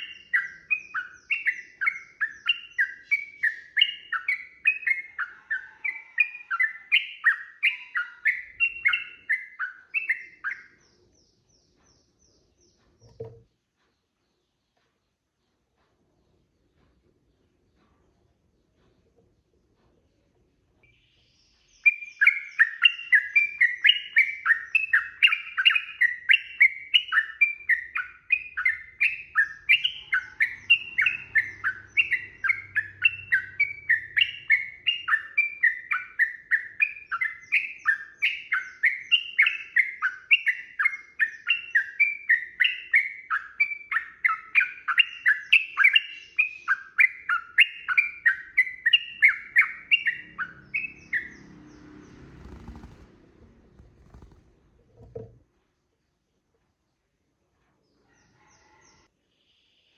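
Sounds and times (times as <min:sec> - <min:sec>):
bulbul singing whistled phrases: 0:00.0 - 0:12.8, 0:20.8 - 0:51.5.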